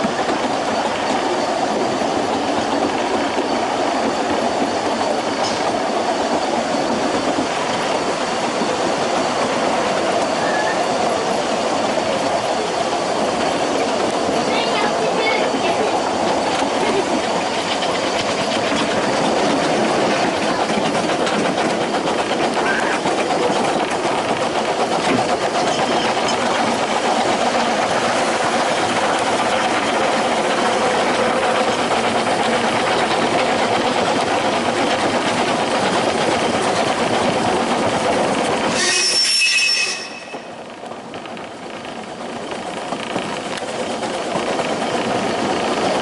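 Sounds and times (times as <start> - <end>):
train wheels rattling on track: 0.0 - 46.0.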